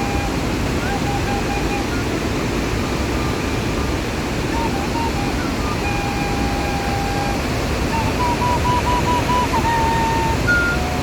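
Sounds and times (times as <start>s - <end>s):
waterfall roar: 0.0s - 11.0s
bird whistling: 4.6s - 11.0s.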